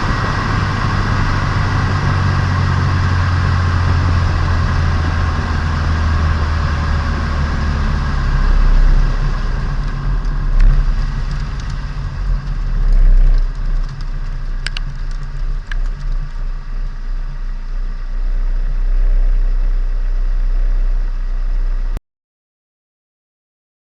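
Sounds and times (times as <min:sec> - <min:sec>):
car engine running at low revs: 0:00.0 - 0:22.0.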